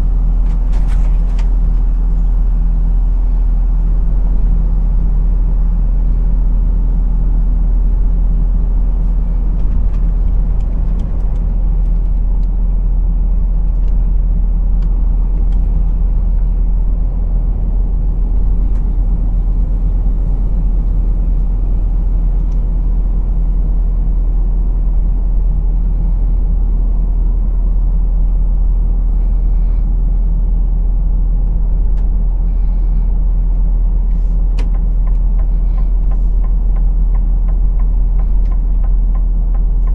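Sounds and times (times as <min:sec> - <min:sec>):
truck engine and road noise: 0:00.0 - 0:39.9.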